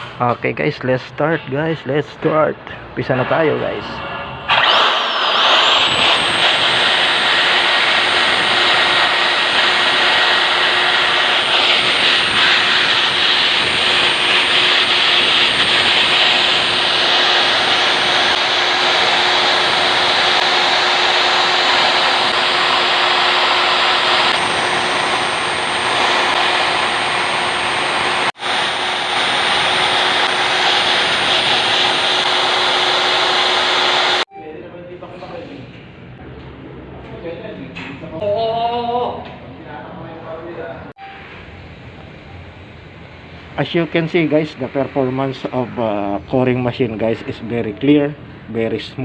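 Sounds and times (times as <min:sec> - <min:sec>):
core drill motor whining: 0:04.5 - 0:34.3.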